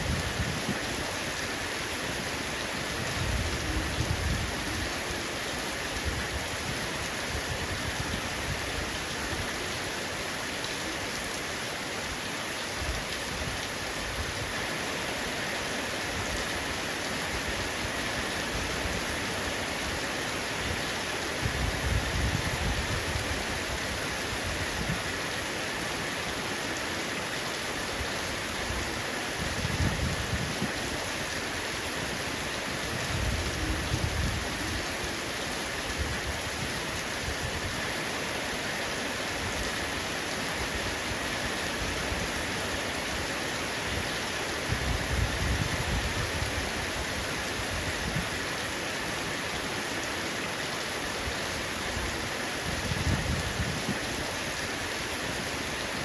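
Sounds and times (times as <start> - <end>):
heavy rain on a roof: 0.0 - 56.0.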